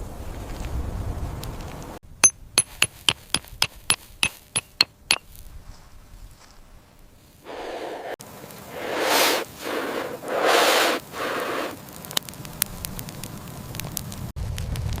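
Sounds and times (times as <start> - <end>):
sharp ringing clinks: 2.2 - 5.2
short bursts of hiss: 7.5 - 11.8.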